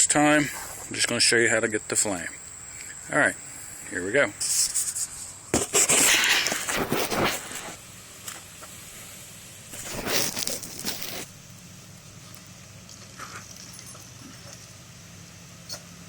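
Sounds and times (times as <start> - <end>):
knife scraping fire striker: 4.4 - 7.8, 9.7 - 11.3.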